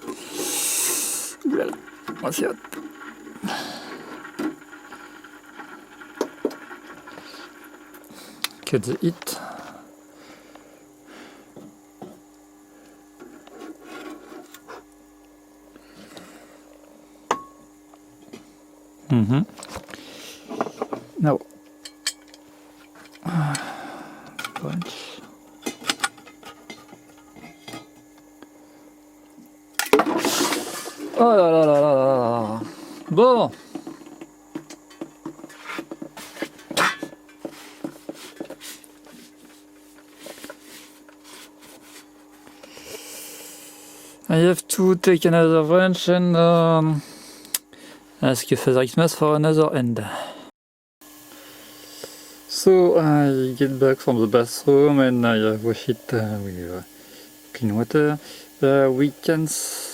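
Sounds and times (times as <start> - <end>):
steady hum: 0.0 - 59.9
clicks and knocks of metal tools: 21.8 - 23.2
metal parts scraped on workbench: 30.1 - 31.0.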